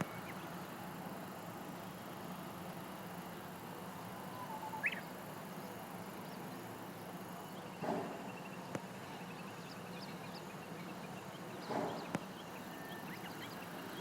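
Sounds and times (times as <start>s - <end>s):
bird singing: 0.0s - 0.8s, 3.9s - 14.0s.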